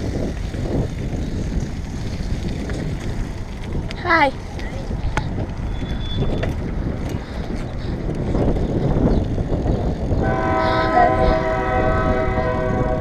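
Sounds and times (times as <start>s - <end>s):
horn sounding a chord: 10.3s - 13.0s.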